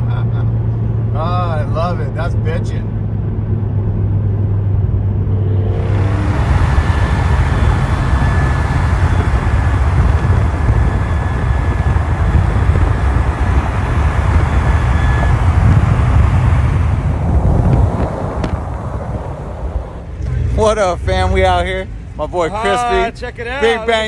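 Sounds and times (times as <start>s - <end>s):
car engine running: 5.2s - 22.1s
thin steady high tone: 5.7s - 20.1s.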